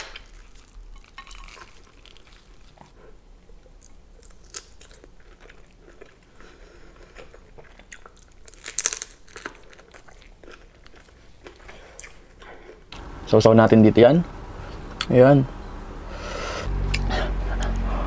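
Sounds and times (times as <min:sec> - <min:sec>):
wet chewing: 0:00.2 - 0:12.9.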